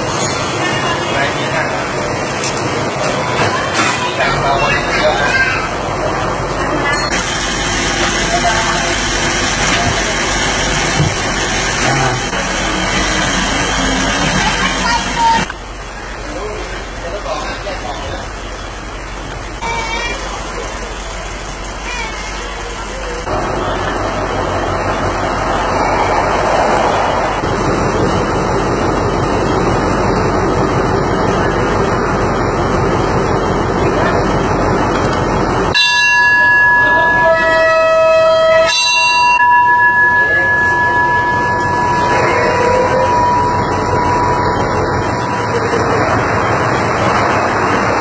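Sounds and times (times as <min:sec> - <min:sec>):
diesel train engine rumbling: 0:00.0 - 0:48.0
faint high tone: 0:36.4 - 0:45.9.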